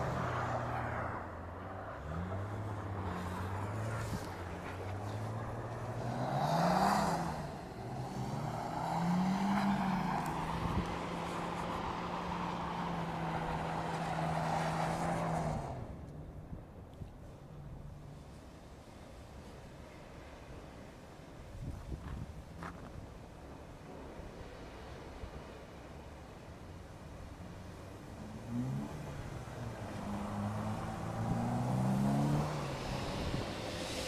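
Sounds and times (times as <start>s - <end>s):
car engine revving: 0.0s - 16.1s, 28.2s - 34.0s.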